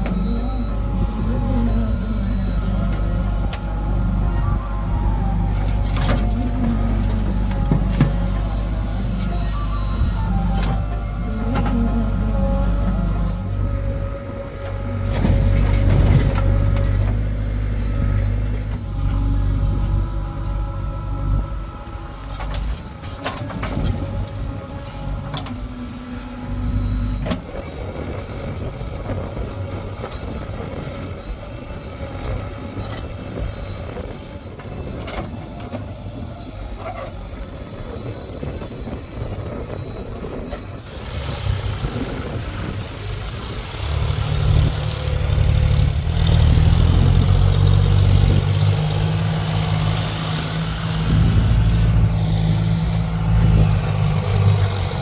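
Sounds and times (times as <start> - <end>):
heavy diesel engine working: 0.0 - 55.0.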